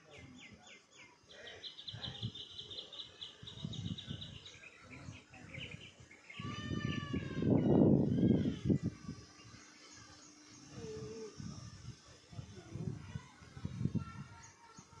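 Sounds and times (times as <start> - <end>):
small bird chirping: 0.0 - 12.0
falling multi-tone bird call: 1.8 - 11.4.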